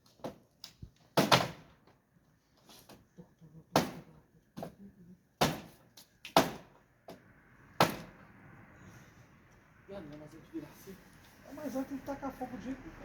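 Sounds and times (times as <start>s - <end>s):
wooden bed frame banging: 1.2s - 1.7s.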